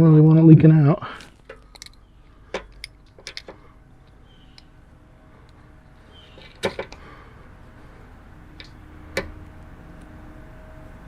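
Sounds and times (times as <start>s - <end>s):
faint steady hum: 0.0s - 11.0s
small clicks and knocks: 1.2s - 4.7s, 6.2s - 7.1s, 8.6s - 10.1s.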